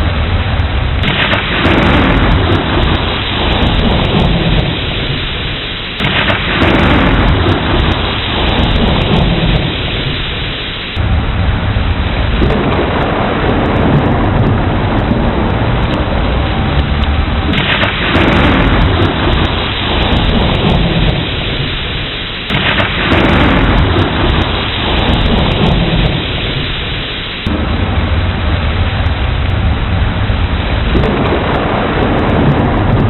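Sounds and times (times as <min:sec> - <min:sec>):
heavy rain: 0:00.0 - 0:33.0
rolling thunder: 0:00.0 - 0:33.0.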